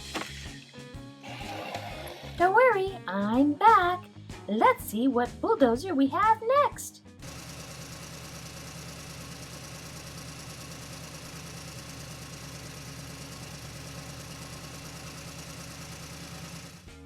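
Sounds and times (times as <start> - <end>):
diesel engine idling: 7.2 - 16.9.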